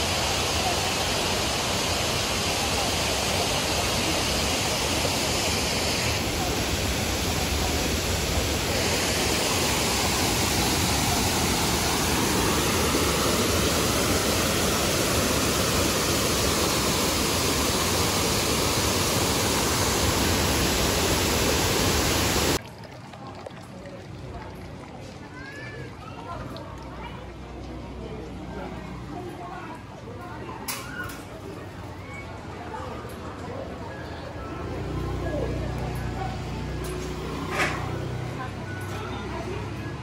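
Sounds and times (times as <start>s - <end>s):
waterfall rushing: 0.0s - 22.6s.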